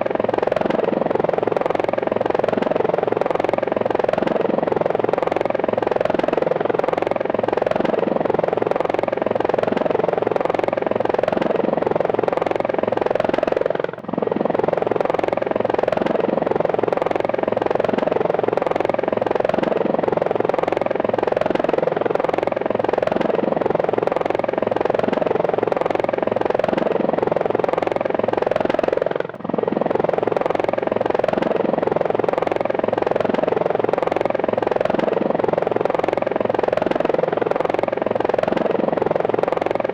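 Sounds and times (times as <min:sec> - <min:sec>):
helicopter rotor chop: 0:00.0 - 0:39.9.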